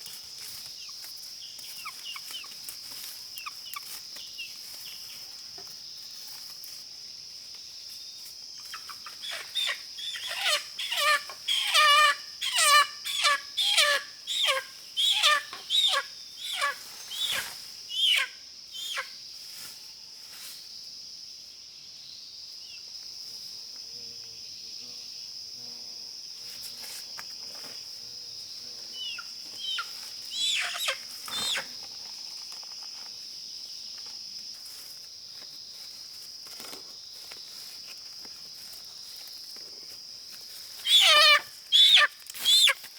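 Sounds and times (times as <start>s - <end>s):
chicken squawking: 9.2s - 19.1s, 29.6s - 31.6s, 40.8s - 42.8s
high-pitched insect drone: 27.6s - 31.9s.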